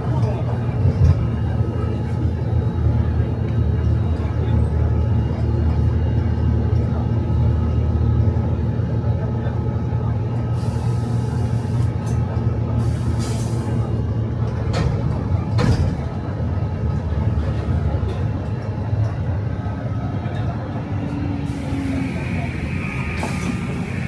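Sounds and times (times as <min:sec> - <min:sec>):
bus engine humming: 0:00.0 - 0:24.0
hiss bursts: 0:21.5 - 0:24.0.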